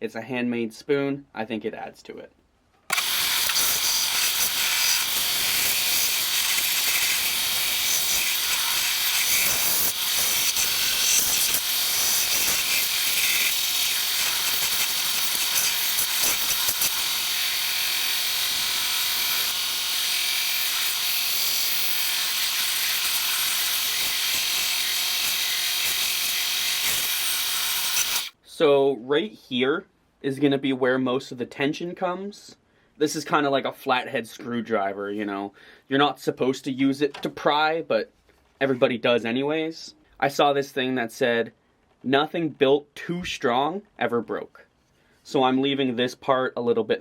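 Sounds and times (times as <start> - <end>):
belt sander sanding wood: 2.9 - 28.4.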